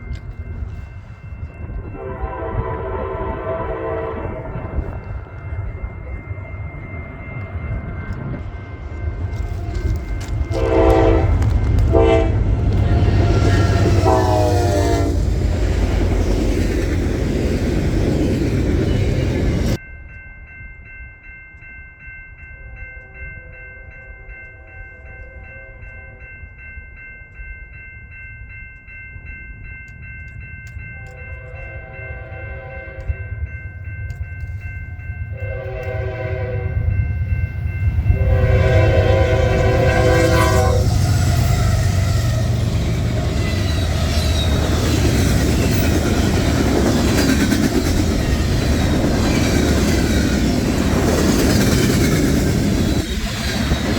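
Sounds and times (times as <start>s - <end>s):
train rumbling past: 0.0s - 19.8s, 29.6s - 53.9s
train horn blasts: 1.8s - 5.1s, 9.5s - 15.8s, 31.0s - 33.3s, 35.3s - 37.1s, 38.0s - 44.6s
locomotive horn: 1.9s - 5.0s, 9.6s - 15.8s, 31.0s - 33.3s, 35.3s - 37.0s, 38.1s - 44.6s.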